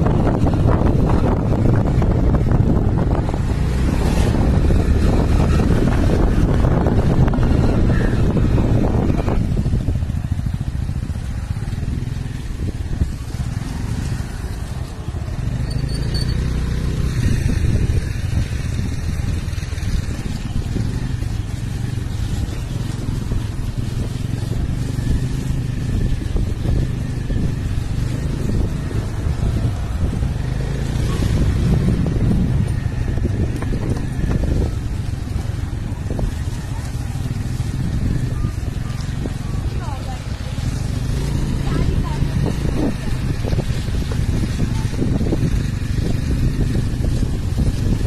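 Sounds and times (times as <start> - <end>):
motorcycle engine humming: 0.0 - 48.0
road and wind noise: 0.0 - 48.0.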